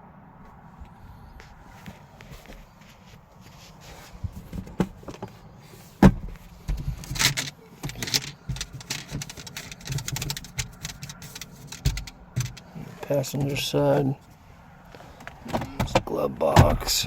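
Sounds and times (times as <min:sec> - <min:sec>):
clicks and rattles from handling: 0:06.7 - 0:12.7.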